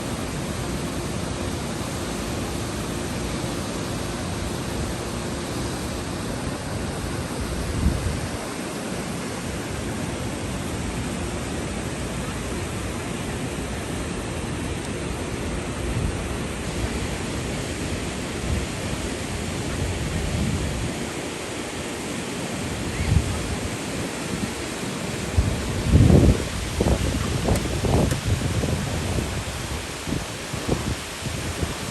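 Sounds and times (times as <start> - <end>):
waterfall rushing: 0.0 - 31.9
wind rumble on microphone: 3.9 - 9.2, 15.0 - 21.4, 22.6 - 31.9.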